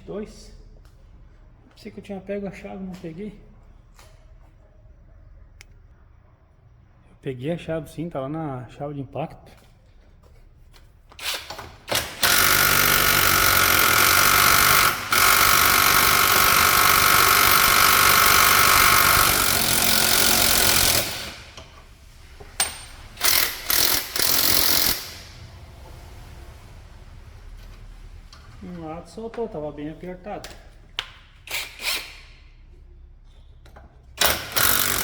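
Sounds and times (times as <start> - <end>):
impact wrench hammering bolt: 11.2 - 21.8, 22.6 - 25.2, 34.2 - 35.0.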